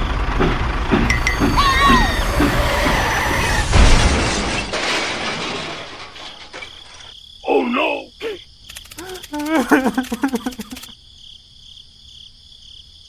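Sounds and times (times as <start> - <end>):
crash with shattering: 3.3 - 7.1.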